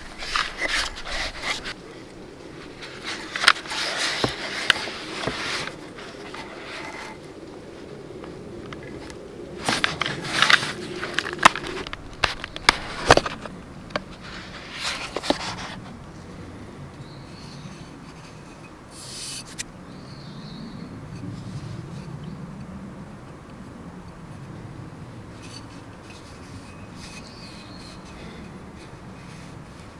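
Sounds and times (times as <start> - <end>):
knocks clicks and rustles: 2.8 - 7.2, 9.6 - 14.2.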